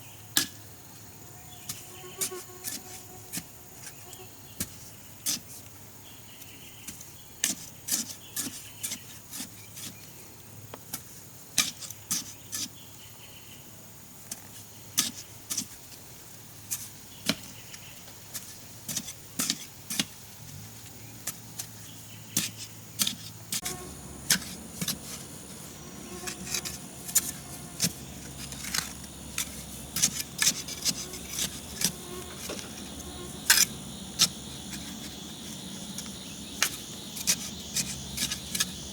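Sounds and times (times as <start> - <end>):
high insect chirr: 0.0 - 5.1, 19.8 - 38.9.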